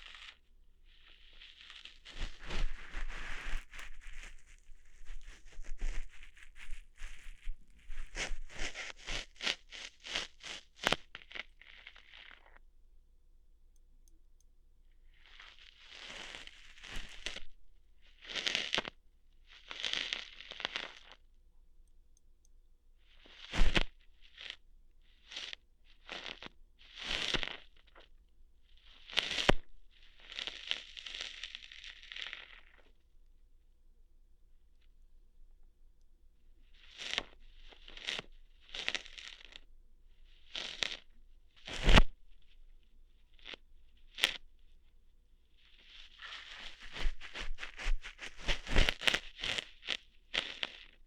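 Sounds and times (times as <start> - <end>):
crackly ear-hair plucking scratches: 0.0 - 12.6, 15.1 - 21.2, 23.1 - 28.1, 28.7 - 33.0, 36.7 - 44.8, 45.5 - 51.0
ear hair plucking snaps: 46.6 - 50.7.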